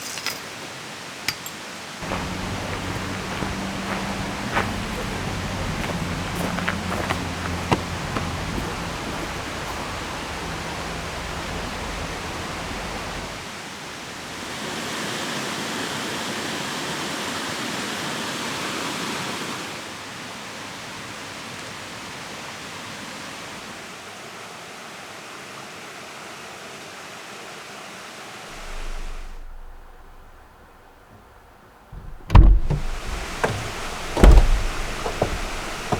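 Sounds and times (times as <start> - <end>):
river water flowing: 0.0 - 20.9, 28.5 - 35.9
rain: 0.0 - 35.9.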